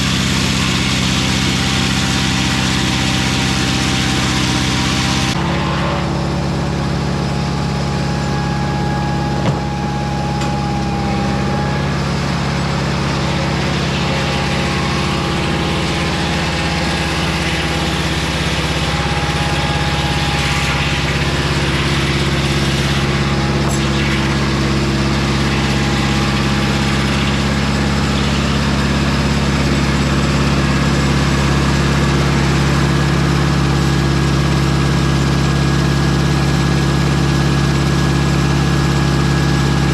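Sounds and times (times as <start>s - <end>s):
sawmill engine running: 0.0s - 39.9s
brief knock: 9.4s - 9.6s.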